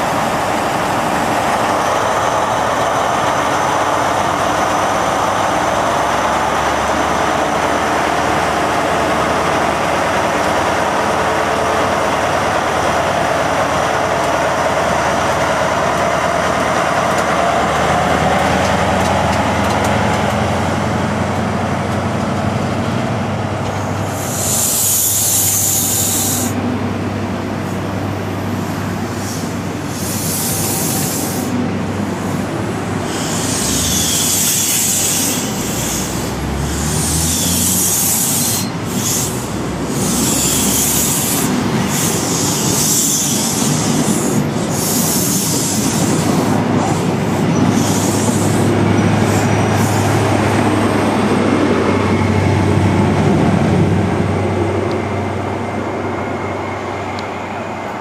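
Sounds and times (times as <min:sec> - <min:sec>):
diesel train engine rumble: 0:00.0 - 0:58.0
compressed air hiss: 0:24.1 - 0:26.6, 0:29.2 - 0:31.6, 0:33.0 - 0:50.1.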